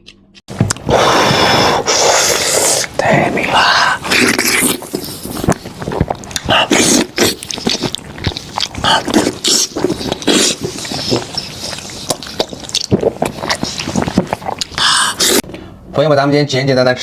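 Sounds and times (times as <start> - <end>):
sucking: 0.6 - 15.5
wet chewing: 1.8 - 15.5.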